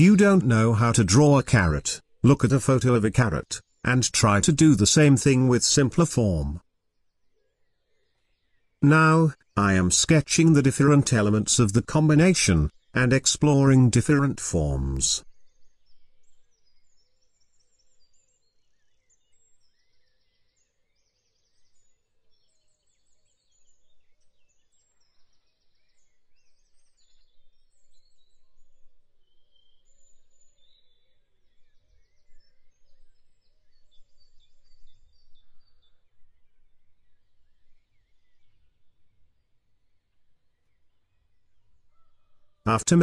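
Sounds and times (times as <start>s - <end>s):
low background noise: 0.0s - 7.3s, 8.8s - 15.3s
small birds chirping and trilling: 15.2s - 42.6s.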